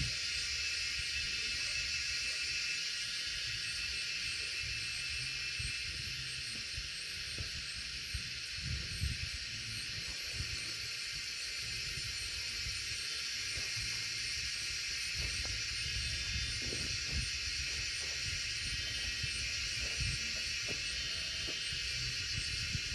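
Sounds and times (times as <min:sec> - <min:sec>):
high-pitched hiss: 0:00.0 - 0:22.9
wind gusting over microphone: 0:07.4 - 0:10.6, 0:13.7 - 0:22.9.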